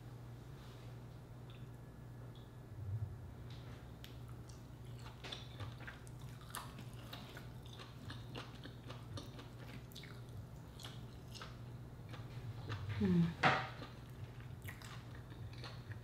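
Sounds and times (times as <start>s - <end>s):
low steady hum: 0.0s - 16.0s
chewing: 4.0s - 16.0s.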